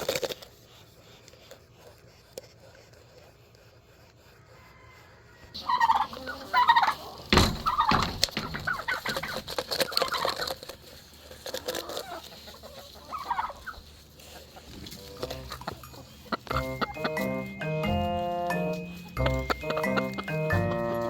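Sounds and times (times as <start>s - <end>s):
chickens clucking: 4.4s - 21.0s.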